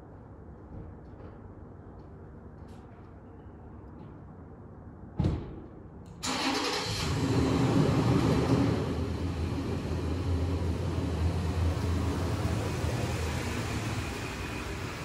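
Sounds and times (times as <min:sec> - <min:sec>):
thump: 0:05.2 - 0:05.7
car engine starting and running: 0:06.2 - 0:15.0.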